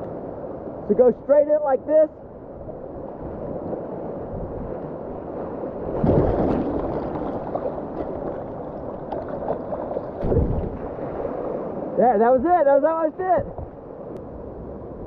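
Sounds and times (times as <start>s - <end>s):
river rushing: 5.1s - 14.9s
water splashing: 5.8s - 12.0s.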